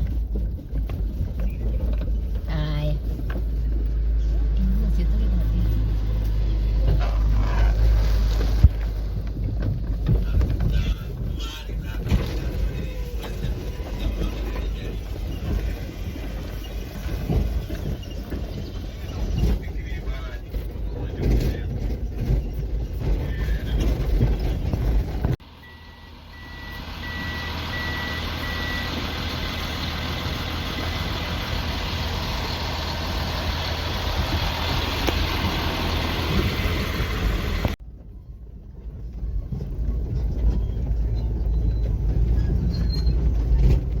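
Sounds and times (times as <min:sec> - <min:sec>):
heavy machinery diesel engines: 0:00.0 - 0:44.0
reversing alarm beeping: 0:25.6 - 0:29.4.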